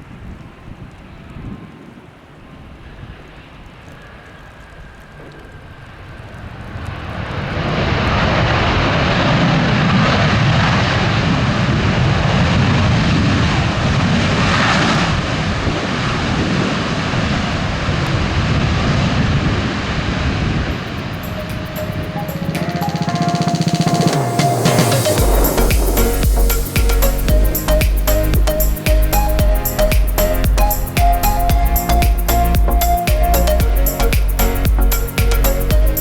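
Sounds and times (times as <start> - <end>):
jet airliner engine noise: 0.0 - 27.9.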